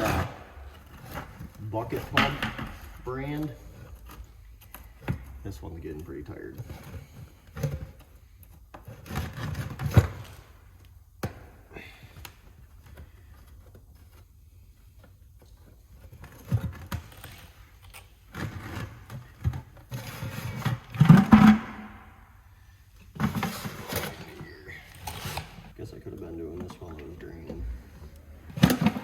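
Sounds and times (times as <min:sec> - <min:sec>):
metal parts and tools clunking: 0:00.0 - 0:05.4.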